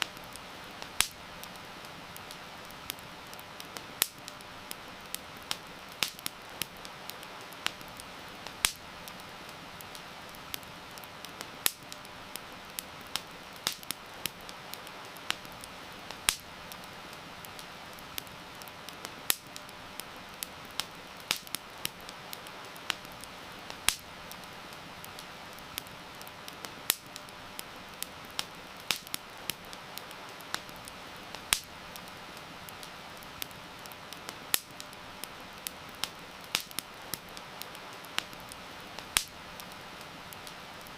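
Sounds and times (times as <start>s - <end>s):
rain hissing: 0.0s - 40.9s
wood fire crackling and snapping: 0.0s - 40.9s.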